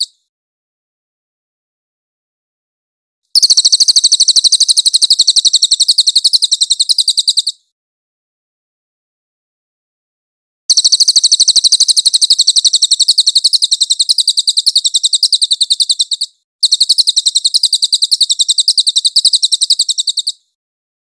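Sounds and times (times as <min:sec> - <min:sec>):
bird rattling trill: 0:03.4 - 0:07.6, 0:10.7 - 0:20.5.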